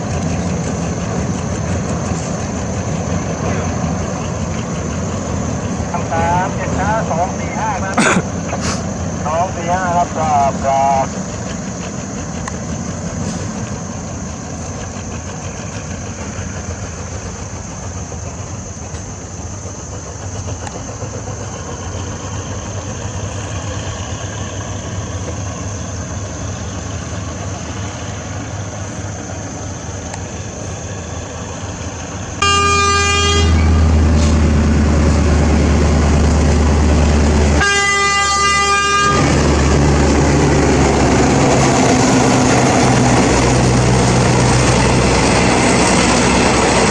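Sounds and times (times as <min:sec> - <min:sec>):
diesel train engine rumbling: 0:00.0 - 0:46.9
train horn blasts: 0:32.4 - 0:42.4.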